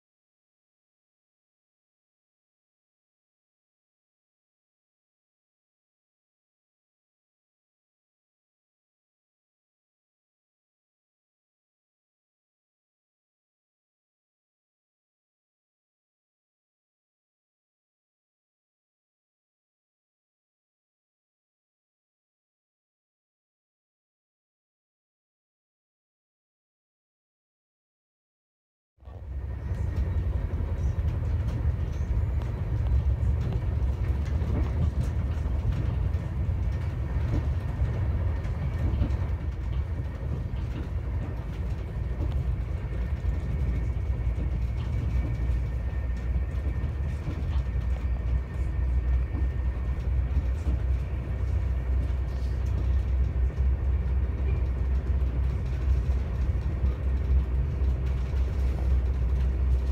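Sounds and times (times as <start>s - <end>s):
train wheels rumbling on rail: 29.0s - 59.9s.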